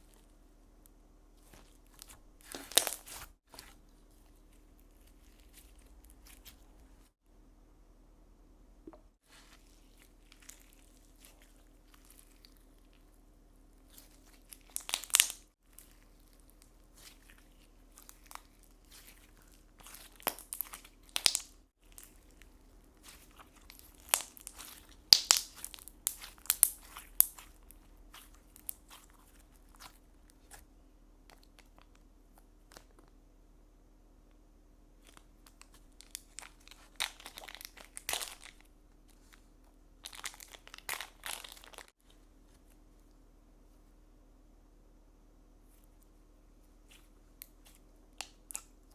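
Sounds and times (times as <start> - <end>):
slime crackling and popping: 1.6 - 3.7, 13.9 - 30.6, 35.0 - 38.6, 40.0 - 41.9.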